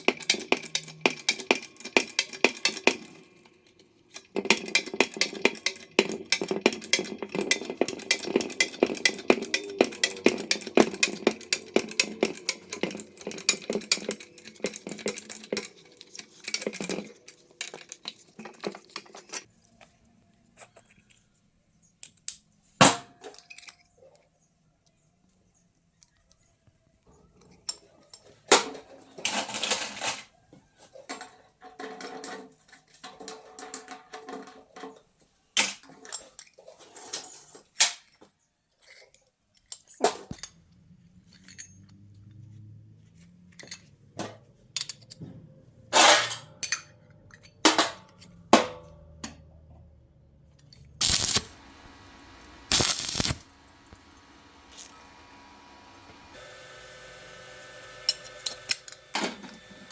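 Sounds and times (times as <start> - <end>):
metal clinks and clatters: 0.0 - 19.5, 35.8 - 42.4.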